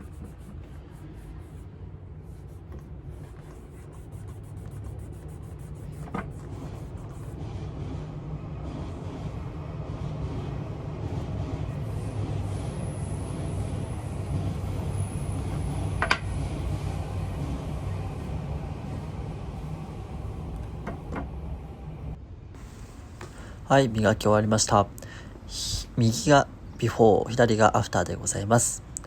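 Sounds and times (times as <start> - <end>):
shoe being buffed: 0.0 - 21.8.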